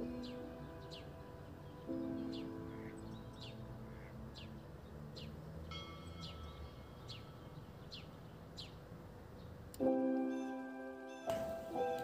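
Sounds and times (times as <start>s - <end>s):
songbird calling: 0.0s - 12.0s
faint chime-like music: 4.8s - 8.4s, 9.9s - 12.0s.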